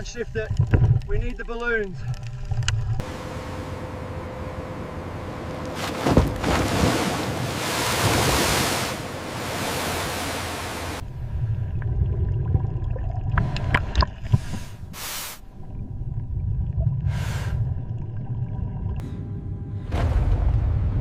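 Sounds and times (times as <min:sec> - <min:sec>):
low underwater rumble: 0:11.0 - 0:21.0
regulator breathing hiss: 0:14.5 - 0:15.5.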